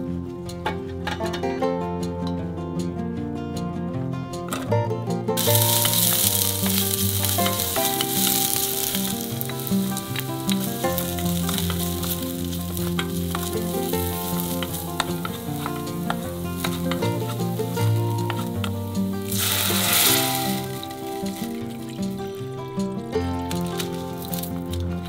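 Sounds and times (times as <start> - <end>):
wooden spoon stirring: 5.4 - 22.3
green onions sizzling in hot oil: 5.4 - 22.4, 23.5 - 24.7.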